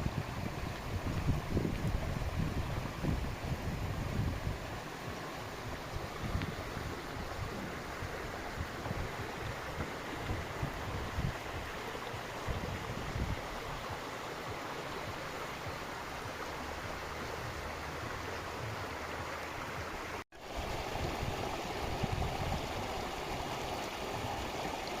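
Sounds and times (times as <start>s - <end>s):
wind thumping on microphone: 0.0s - 14.6s, 20.4s - 24.6s
running water: 0.0s - 25.0s.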